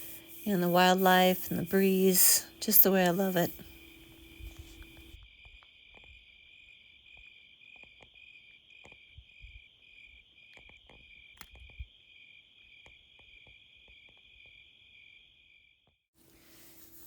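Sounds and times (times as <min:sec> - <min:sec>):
crickets chirping: 0:00.0 - 0:05.2.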